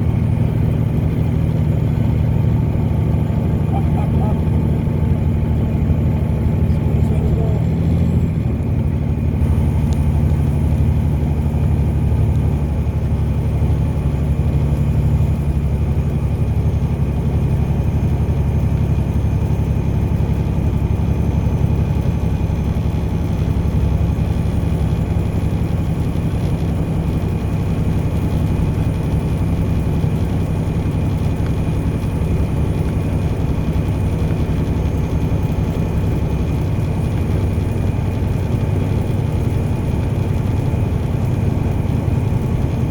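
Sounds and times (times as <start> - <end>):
car engine and road noise: 0.0 - 42.9.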